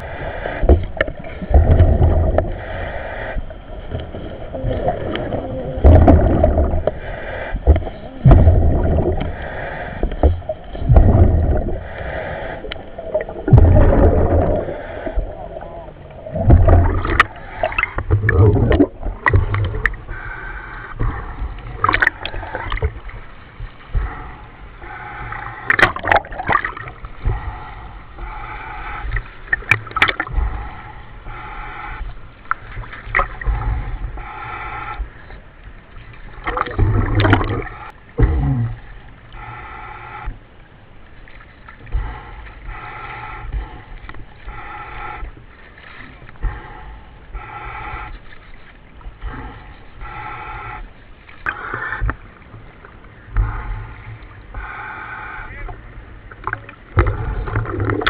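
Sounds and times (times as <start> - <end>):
diver breathing bubbles gurgling: 0.0 - 23.2, 24.0 - 35.3, 36.3 - 40.3, 41.9 - 48.4, 49.0 - 58.0
steady radio hiss: 53.4 - 56.2.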